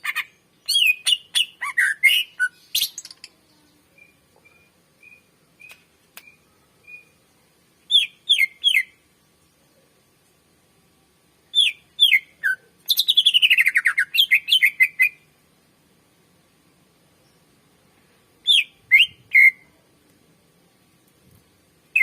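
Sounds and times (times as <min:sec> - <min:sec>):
bird singing whistles and trills: 0:00.1 - 0:03.3, 0:03.9 - 0:07.2, 0:07.9 - 0:09.0, 0:11.5 - 0:15.2, 0:18.4 - 0:19.7.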